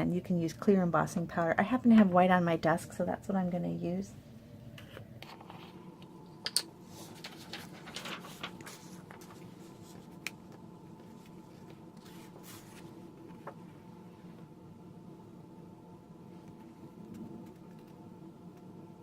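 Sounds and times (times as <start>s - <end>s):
faint steady hum: 0.0s - 19.0s
powder sprinkling and paper rustling: 6.9s - 13.6s.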